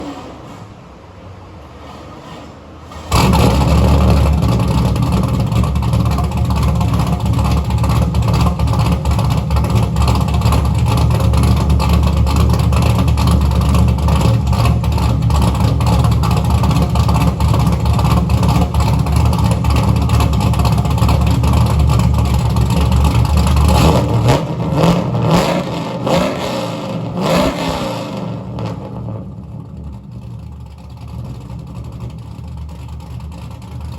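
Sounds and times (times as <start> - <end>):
engine starting: 0.0 - 0.8, 1.8 - 4.7
engine idling fast: 3.1 - 26.0, 28.2 - 33.9
engine revving: 3.1 - 30.4.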